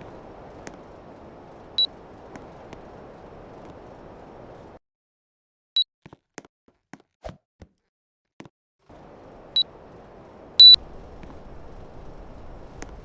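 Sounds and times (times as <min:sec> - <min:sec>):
steady low hiss: 0:00.0 - 0:04.8, 0:08.9 - 0:13.0
short high beeps: 0:10.6 - 0:10.8.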